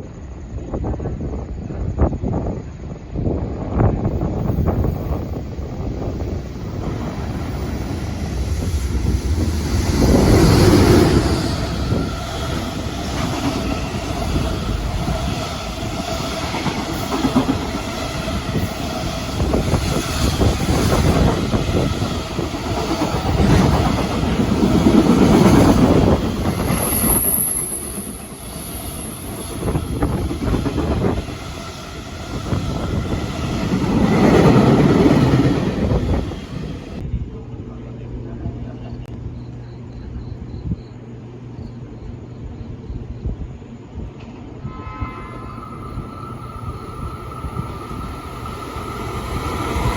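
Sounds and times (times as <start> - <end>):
train wheels clattering: 4.5 - 37.0
steady tone: 5.3 - 16.0, 44.6 - 49.9.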